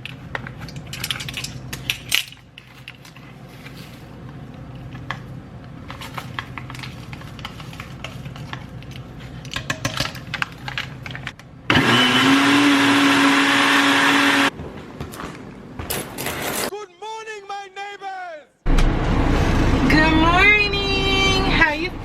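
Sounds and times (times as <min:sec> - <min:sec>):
kitchenware clinking and rattling: 0:00.0 - 0:03.3, 0:05.9 - 0:11.4
electric blender running: 0:11.7 - 0:14.5.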